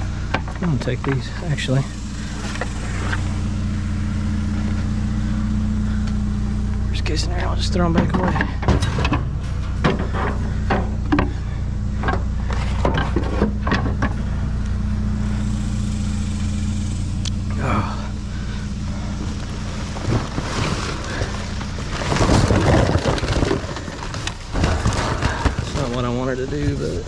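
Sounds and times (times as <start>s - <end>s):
vehicle engine idling: 0.0s - 27.0s
knocks and clatter of items handled: 7.9s - 11.4s, 12.0s - 14.2s, 19.4s - 26.1s.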